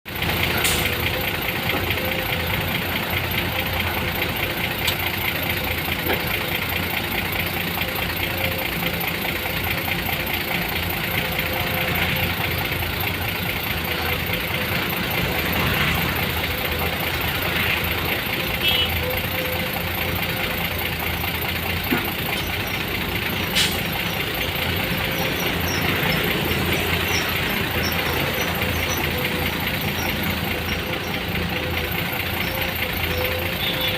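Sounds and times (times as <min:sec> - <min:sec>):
vehicle engine idling: 0:00.1 - 0:33.9.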